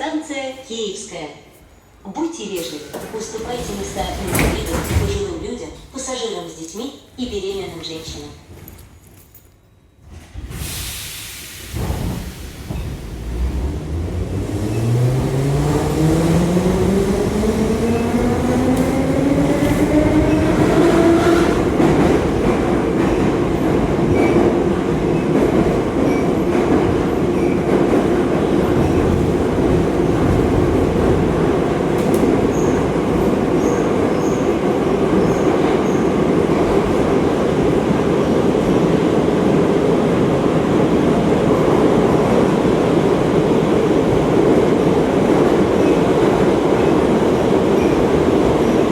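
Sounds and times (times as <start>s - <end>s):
train running noise: 10.0s - 38.8s.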